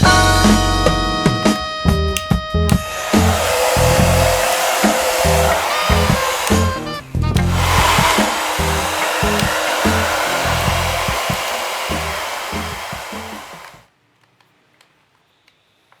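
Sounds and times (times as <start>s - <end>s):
hair dryer blowing: 2.7s - 13.8s.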